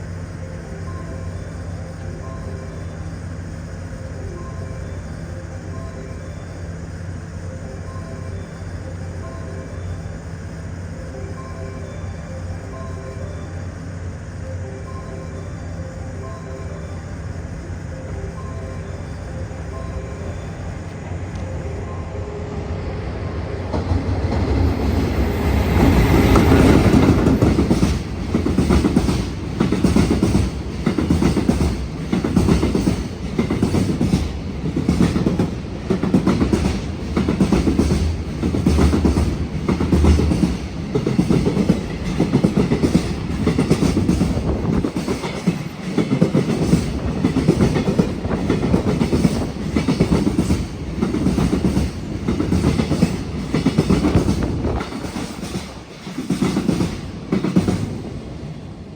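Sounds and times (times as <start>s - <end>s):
electric locomotive passing: 0.0s - 58.9s
wagon wheels clacking over rail joints: 26.4s - 57.9s.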